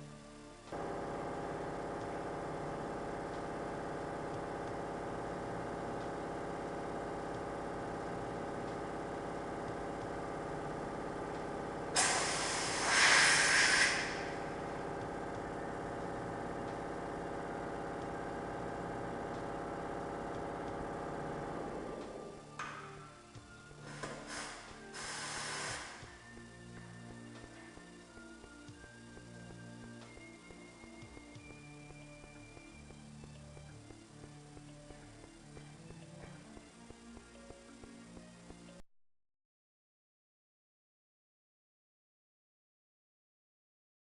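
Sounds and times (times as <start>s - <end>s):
steady machine drone: 0.0s - 38.8s
compressed air blast: 11.9s - 14.6s, 23.8s - 26.1s.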